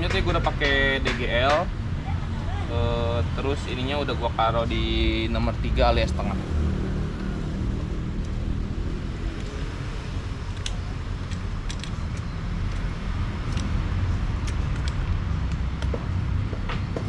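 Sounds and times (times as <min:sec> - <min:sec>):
low engine-like rumble: 0:07.1 - 0:17.0
light sharp metal clicks: 0:10.5 - 0:13.8.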